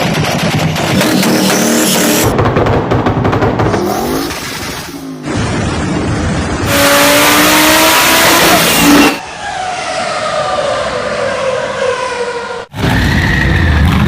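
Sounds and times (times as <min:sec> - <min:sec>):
car engines revving hard: 0:00.8 - 0:02.3, 0:03.6 - 0:09.2.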